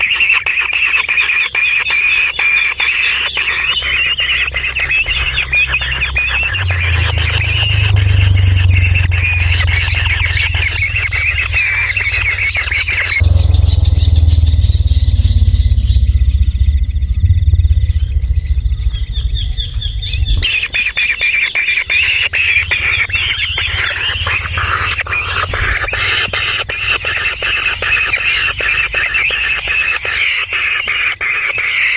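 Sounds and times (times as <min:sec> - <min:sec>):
birds chirping: 0:00.0 - 0:31.9
pulsing insect trill: 0:00.0 - 0:31.9
low hum: 0:03.2 - 0:30.6
low rumble: 0:03.8 - 0:20.9, 0:22.0 - 0:30.2.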